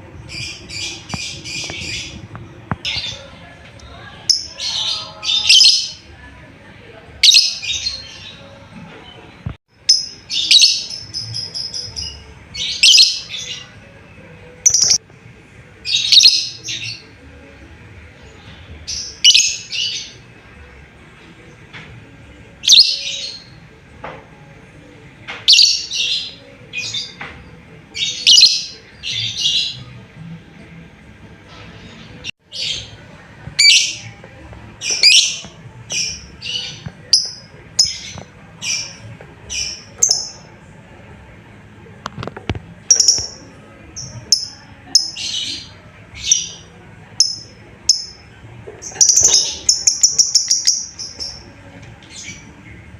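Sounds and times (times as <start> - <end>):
lovebird high chirping calls: 48.9 - 51.4.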